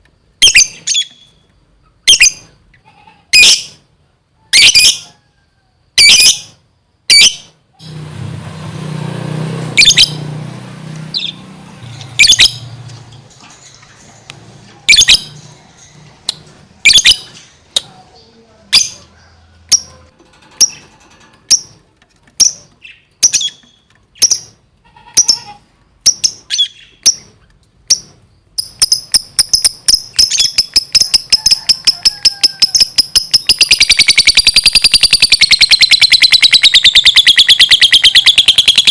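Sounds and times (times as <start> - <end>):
bird chirping shrilly: 9.7 - 10.4, 11.1 - 11.5, 12.1 - 12.8, 14.9 - 15.5, 16.8 - 17.8, 25.2 - 27.3, 27.9 - 38.9.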